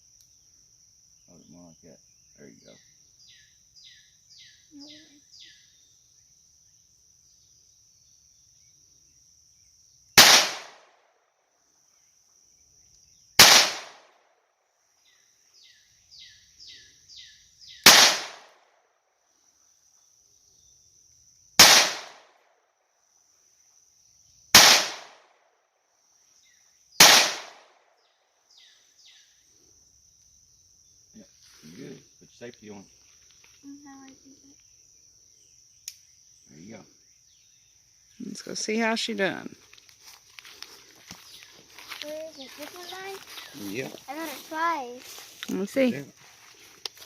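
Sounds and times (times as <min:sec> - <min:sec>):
pistol shots: 0:10.2 - 0:10.9, 0:13.4 - 0:14.1, 0:17.8 - 0:18.5, 0:21.6 - 0:22.3, 0:24.6 - 0:25.2, 0:27.0 - 0:27.7.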